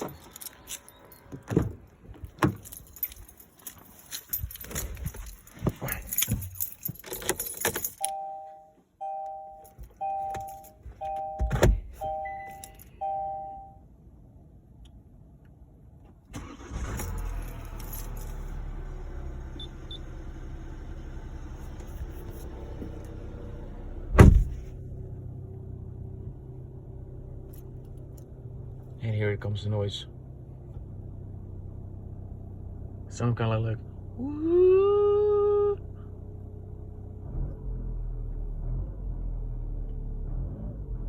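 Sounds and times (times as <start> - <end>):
keys jangling: 0.0 - 8.2, 17.2 - 18.4
two-tone dashboard chime: 7.9 - 13.8
diesel engine starting and idling: 16.3 - 41.0
loud thump: 24.1 - 24.7.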